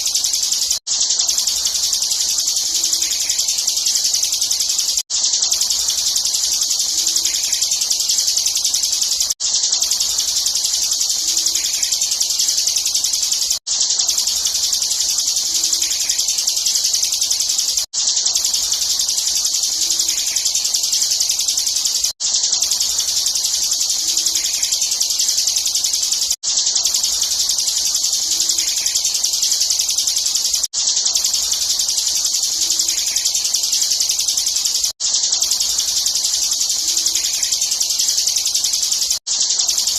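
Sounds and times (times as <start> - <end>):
bird singing high-pitched trill: 0.0 - 39.9.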